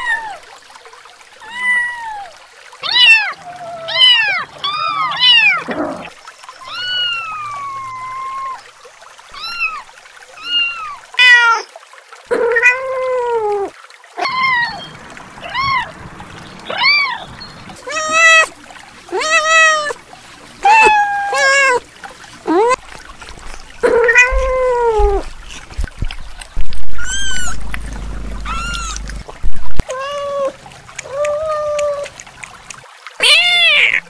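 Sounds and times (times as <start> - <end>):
kittens meowing: 2.8 - 8.7, 14.2 - 16.0, 17.8 - 18.5, 20.6 - 21.8, 23.5 - 25.3, 27.0 - 29.2.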